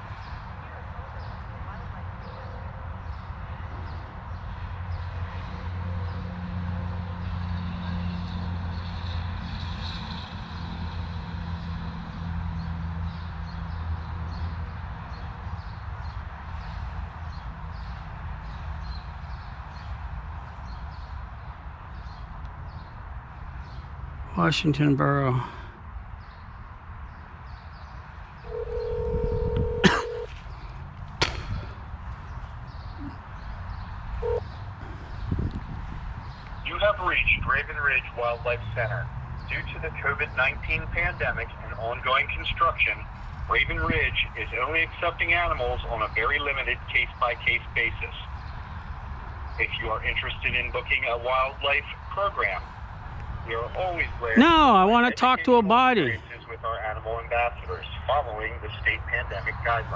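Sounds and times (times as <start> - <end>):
telephone ringback tone: 28.5 - 30.3.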